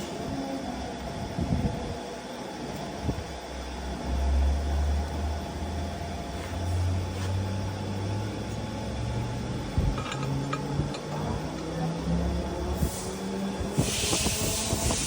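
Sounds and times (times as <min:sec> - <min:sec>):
workshop machine droning: 0:00.0 - 0:15.0.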